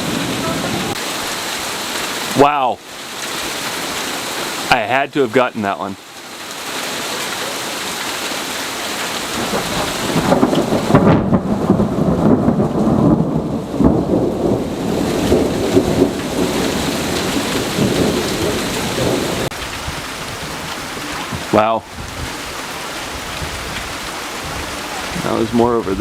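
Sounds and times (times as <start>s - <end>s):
crackling thunder rumble: 0.0s - 1.2s, 9.3s - 26.0s
steady rain: 0.0s - 26.0s.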